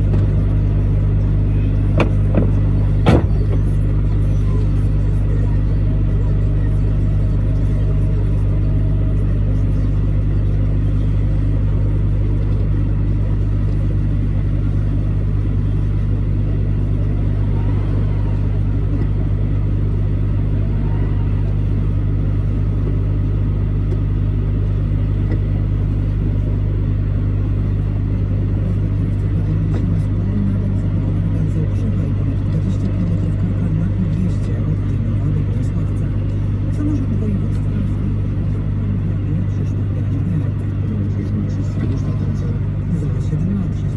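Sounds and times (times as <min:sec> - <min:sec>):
truck engine and road drone: 0:00.0 - 0:43.9.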